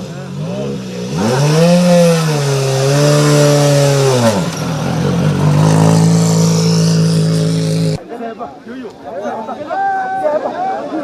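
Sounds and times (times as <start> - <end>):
rally car engine revving: 0.0 - 8.0.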